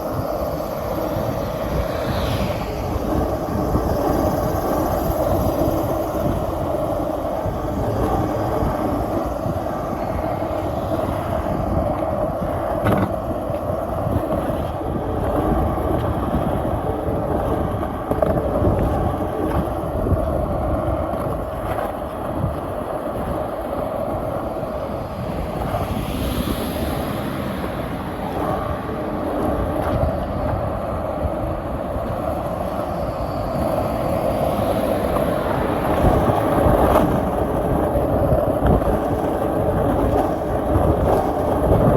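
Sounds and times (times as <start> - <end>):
skateboard wheels rolling on pavement: 0.0 - 41.9
skateboard knocks over joints: 12.8 - 13.2.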